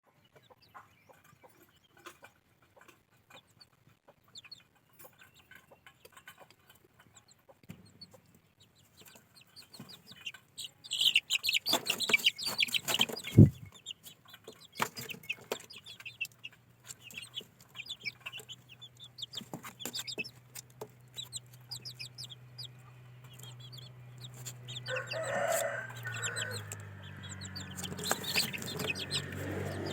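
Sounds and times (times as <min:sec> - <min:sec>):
chicks peeping: 0:00.1 - 0:29.9
sharp thump: 0:13.2 - 0:13.7.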